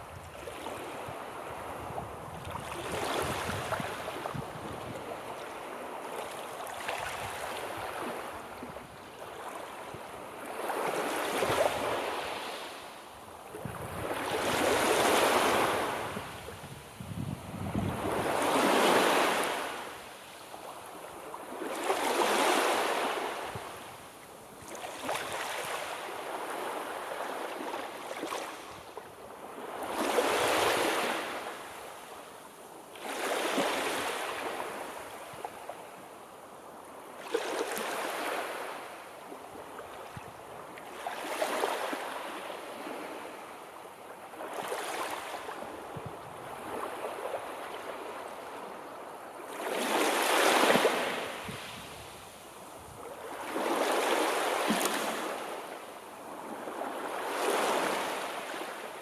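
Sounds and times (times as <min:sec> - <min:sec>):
sea waves breaking: 0:53.1 - 0:58.8.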